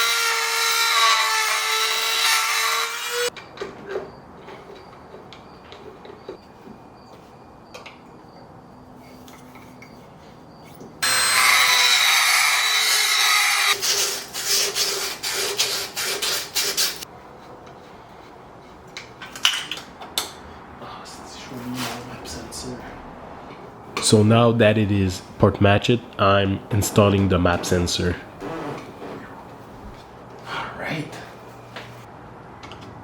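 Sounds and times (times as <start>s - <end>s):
rotary grinding tool: 0.0s - 3.3s, 11.0s - 17.0s.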